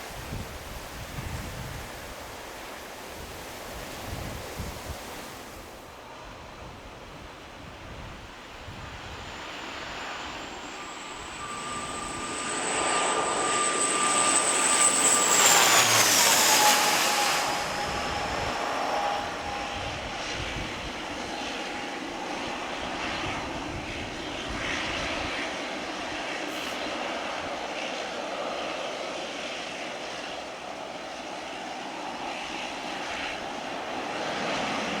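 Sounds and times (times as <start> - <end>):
jet airliner passing: 0.0 - 35.0.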